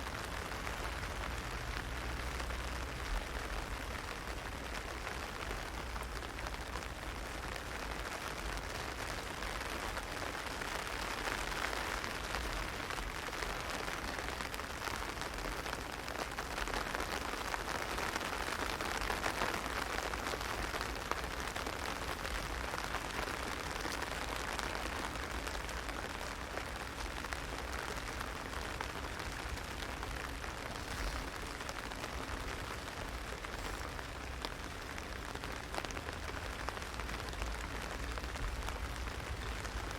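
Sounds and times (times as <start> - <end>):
heavy rain on an umbrella: 0.0 - 39.9.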